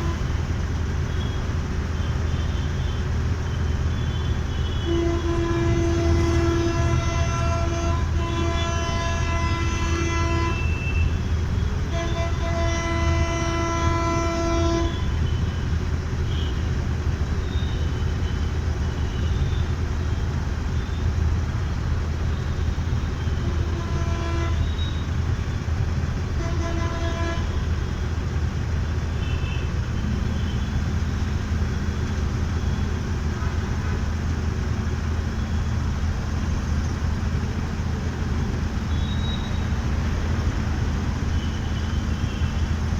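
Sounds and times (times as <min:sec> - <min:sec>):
vehicle horns honking: 0:00.0 - 0:00.4, 0:03.6 - 0:15.7, 0:16.3 - 0:16.7, 0:22.3 - 0:25.6, 0:26.2 - 0:28.2, 0:29.1 - 0:34.2, 0:38.0 - 0:42.9.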